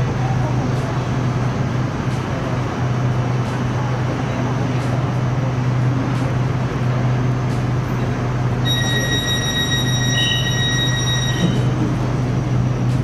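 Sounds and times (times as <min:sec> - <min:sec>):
train carriage running noise: 0:00.0 - 0:13.0
high electronic beep: 0:08.7 - 0:11.7.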